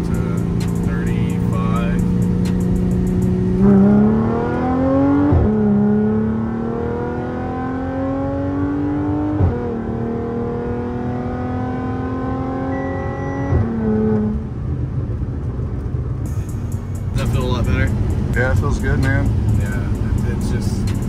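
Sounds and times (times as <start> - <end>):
car engine accelerating with gear shifts: 0.0 - 21.0.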